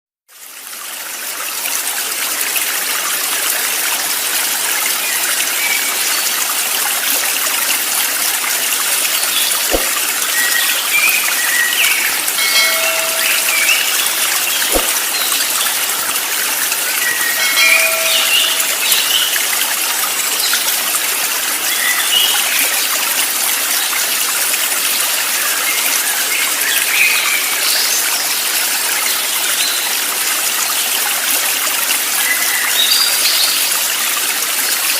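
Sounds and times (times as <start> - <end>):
stream rushing and trickling: 0.3 - 34.9
bird chirps: 9.4 - 15.4, 17.1 - 19.4.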